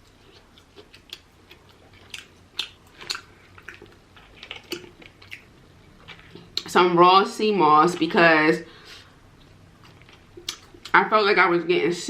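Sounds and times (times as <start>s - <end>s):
chewing with wet mouth clicks: 0.0s - 6.7s, 9.4s - 11.0s.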